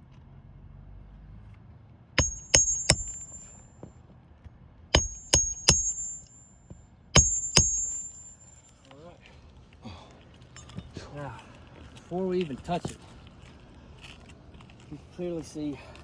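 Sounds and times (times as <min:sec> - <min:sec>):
hammer driving nails into shingles: 0:02.2 - 0:03.6, 0:05.0 - 0:06.4, 0:07.2 - 0:08.5.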